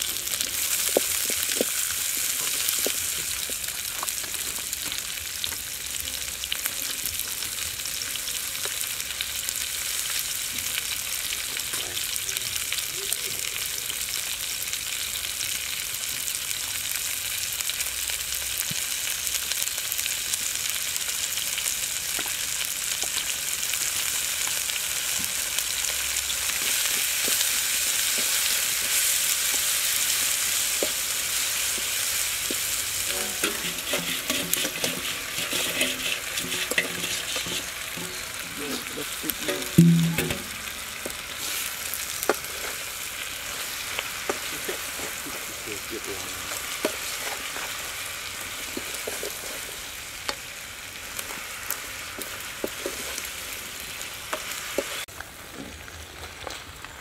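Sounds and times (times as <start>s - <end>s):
food sizzling in hot oil: 0.0s - 57.0s
wooden spoon stirring in wok: 26.4s - 50.6s, 51.2s - 55.1s
faint pitched tones: 37.9s - 41.2s.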